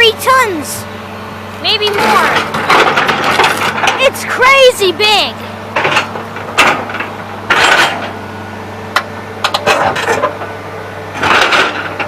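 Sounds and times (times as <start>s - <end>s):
excavator diesel engine running: 0.0s - 12.0s
bucket scraping and clanking on rock: 1.9s - 4.2s.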